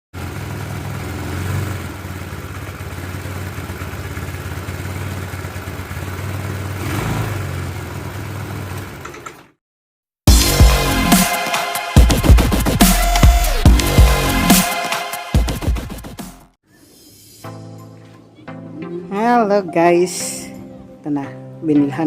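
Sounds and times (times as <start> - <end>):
scooter engine idling: 0.1 - 9.5.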